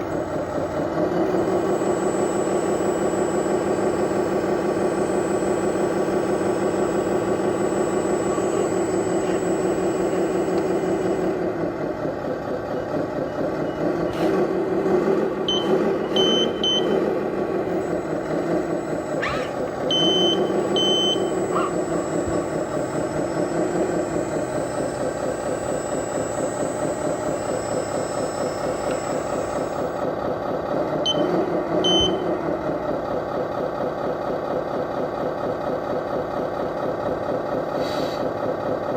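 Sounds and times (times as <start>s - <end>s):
high reversing beeps: 1.3s - 11.4s, 15.5s - 17.1s, 17.7s - 30.0s, 31.1s - 32.3s
truck engine revving: 17.2s - 30.0s.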